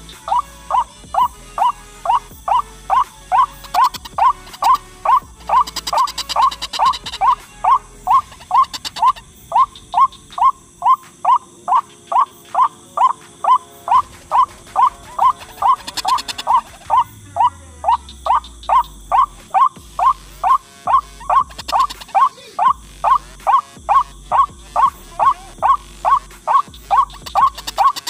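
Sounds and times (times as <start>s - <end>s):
waterhen croaking calls: 0.0s - 28.0s.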